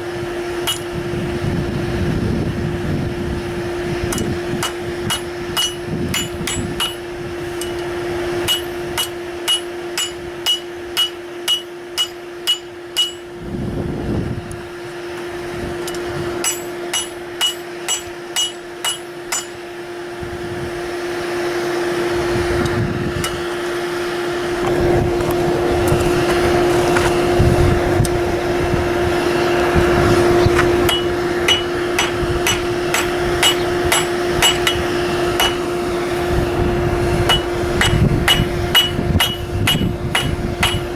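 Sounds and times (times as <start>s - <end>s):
steady hum: 0.0s - 40.9s
hammer striking steel on anvil: 0.6s - 1.0s, 4.1s - 13.4s, 15.8s - 19.7s, 30.6s - 35.8s, 37.3s - 40.9s.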